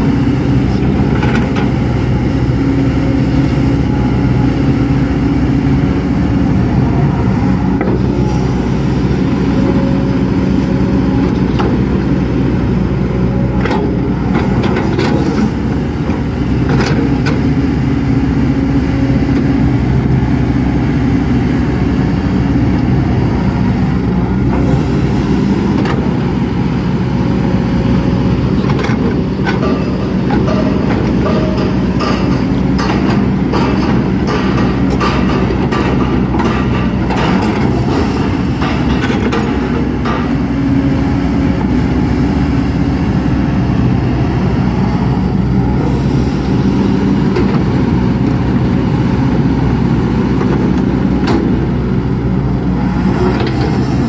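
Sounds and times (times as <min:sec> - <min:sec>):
excavator diesel engine running: 0:00.0 - 0:54.0
machine clanks and knocks: 0:13.6 - 0:17.6, 0:28.5 - 0:40.6, 0:50.3 - 0:51.8.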